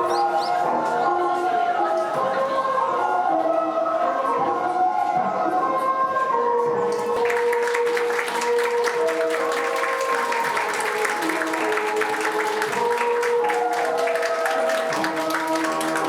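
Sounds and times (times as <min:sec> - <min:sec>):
slow recorded music: 0:00.0 - 0:16.0
people clapping: 0:06.9 - 0:16.0.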